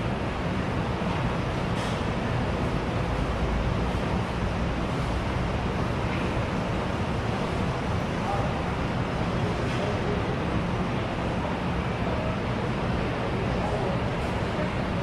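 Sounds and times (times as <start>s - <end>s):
hubbub of many voices: 0.0s - 15.0s.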